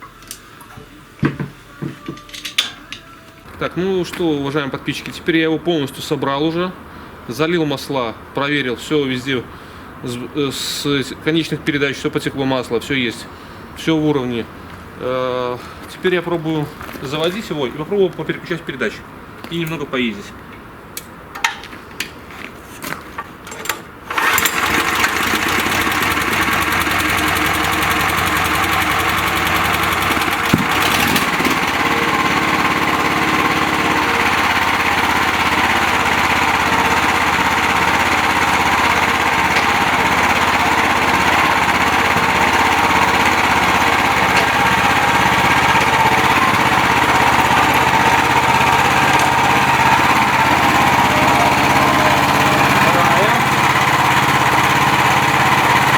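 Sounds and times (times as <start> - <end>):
petrol engine starting and running: 23.6 - 55.9
engine knock: 24.1 - 55.9.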